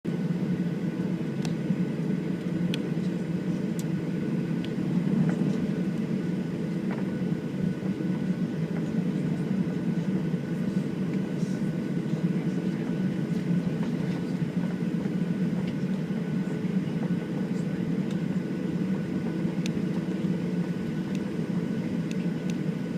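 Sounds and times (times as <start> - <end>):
airliner cabin engine drone: 0.1 - 22.9.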